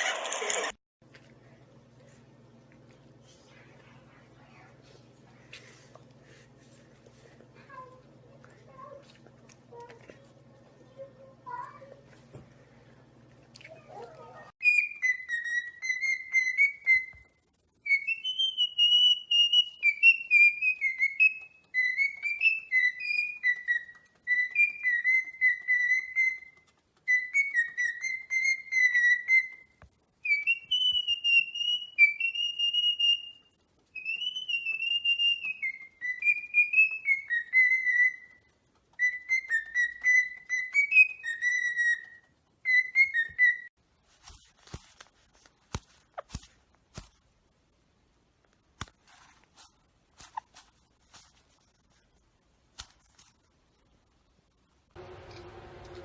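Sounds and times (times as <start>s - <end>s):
parrot whistling a tune: 14.6s - 43.7s.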